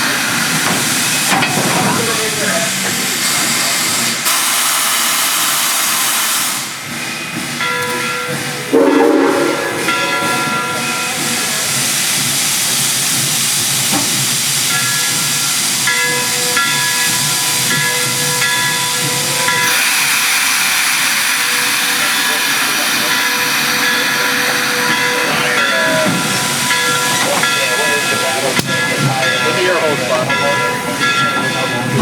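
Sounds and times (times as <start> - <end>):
steam hissing: 0.0 - 7.6, 8.4 - 30.1.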